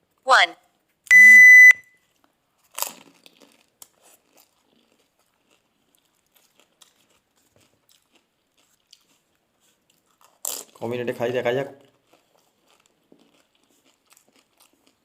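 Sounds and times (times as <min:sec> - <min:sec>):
chewing: 0:02.0 - 0:10.9, 0:11.8 - 0:15.0
crisp shells being crunched: 0:02.6 - 0:04.4, 0:10.3 - 0:10.8.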